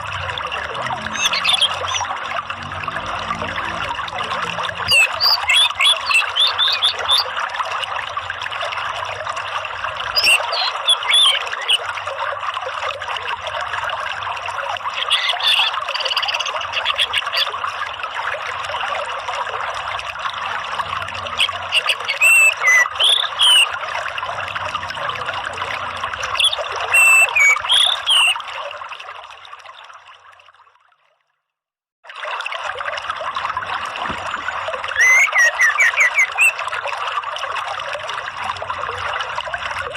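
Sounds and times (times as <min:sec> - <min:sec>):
running water: 0:00.0 - 0:31.2, 0:32.0 - 0:39.9
short high chirping calls: 0:01.1 - 0:02.1, 0:04.9 - 0:07.3, 0:10.2 - 0:11.8, 0:15.0 - 0:17.5, 0:21.4 - 0:23.7, 0:26.4 - 0:28.4, 0:35.0 - 0:36.6.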